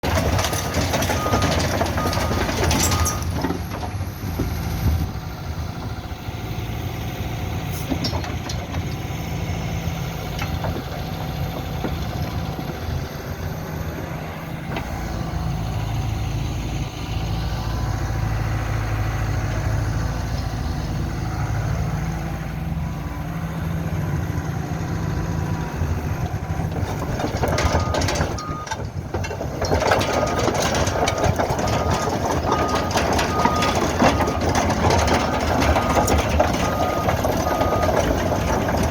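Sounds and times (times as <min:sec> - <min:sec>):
metal knocks and clanks: 0:00.0 - 0:05.1, 0:26.1 - 0:38.9
excavator diesel engine running: 0:00.0 - 0:38.9.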